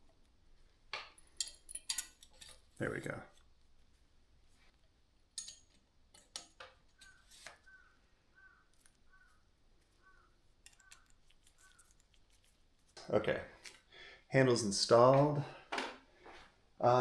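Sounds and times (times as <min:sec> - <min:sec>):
metal bike parts clicking: 0:01.2 - 0:02.8, 0:05.4 - 0:07.9, 0:09.9 - 0:12.6
faint bird calls: 0:07.0 - 0:12.0.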